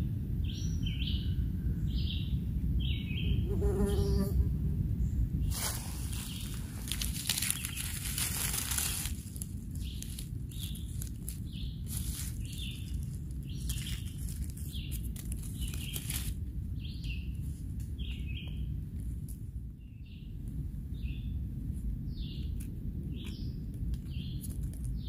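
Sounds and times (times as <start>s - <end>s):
low rumble: 0.0s - 25.0s
loud rustling: 5.5s - 16.4s.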